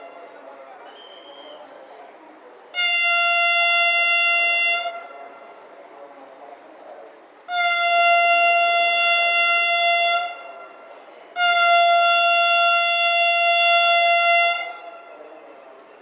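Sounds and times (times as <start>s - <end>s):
steady background noise: 0.0s - 16.0s
train horn blasts: 2.8s - 5.6s, 7.5s - 15.4s.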